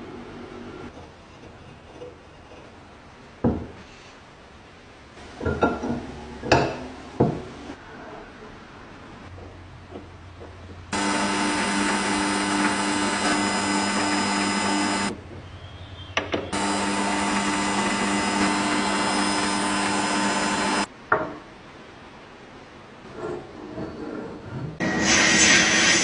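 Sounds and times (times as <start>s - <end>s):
small electric motor running: 10.9s - 15.1s, 16.5s - 20.9s.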